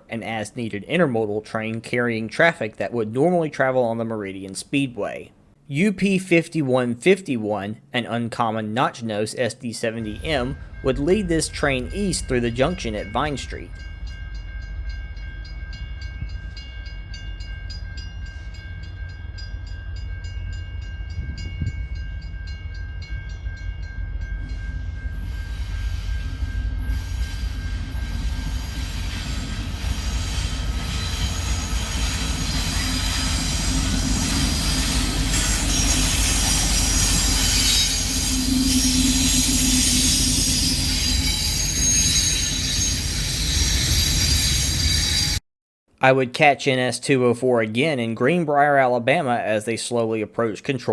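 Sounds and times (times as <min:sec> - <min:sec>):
high steady pulsing tone: 0:10.0 - 0:44.8
freight train passing: 0:10.0 - 0:45.4
wheels squealing on rails: 0:24.5 - 0:45.4.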